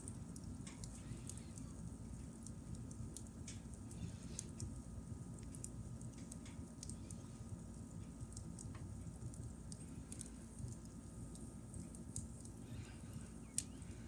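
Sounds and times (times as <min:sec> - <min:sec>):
campfire crackling and popping: 0:00.0 - 0:07.1, 0:07.7 - 0:12.6
low rumble of fire: 0:00.0 - 0:14.0.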